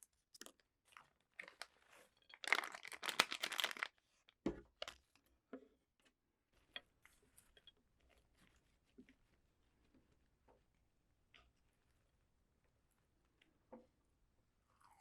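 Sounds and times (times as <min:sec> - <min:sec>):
crunching raw vegetables: 0:00.0 - 0:04.0.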